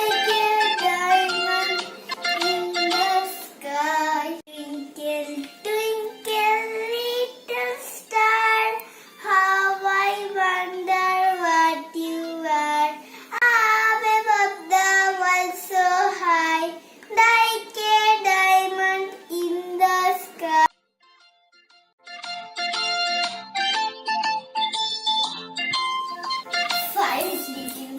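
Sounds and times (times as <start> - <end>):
child singing: 0.0 - 20.7, 26.7 - 27.9.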